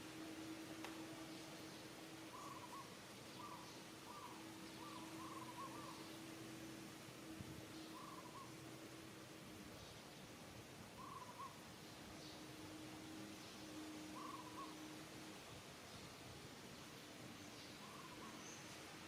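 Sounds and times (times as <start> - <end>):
faint hooting animal calls: 2.2 - 6.6, 7.8 - 8.8, 11.0 - 11.6, 13.7 - 15.1, 17.8 - 18.4.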